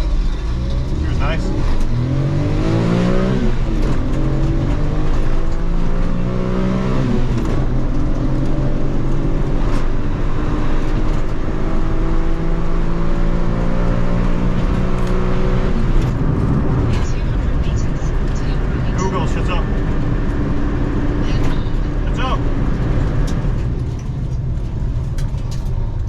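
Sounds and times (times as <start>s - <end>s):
car engine revving at full throttle: 0.0s - 26.0s.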